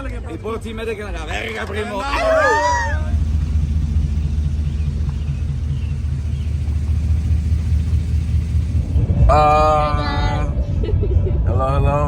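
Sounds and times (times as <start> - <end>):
vehicle driving rumble: 0.0 - 12.0
held pitched tone: 2.2 - 10.2.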